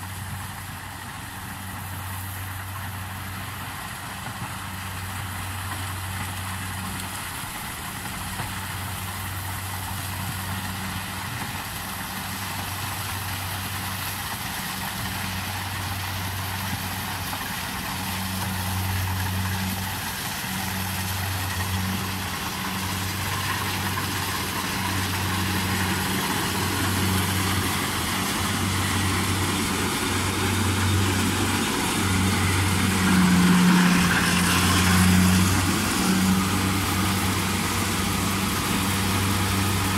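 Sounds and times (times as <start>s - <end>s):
harvester engine running: 0.0s - 39.9s.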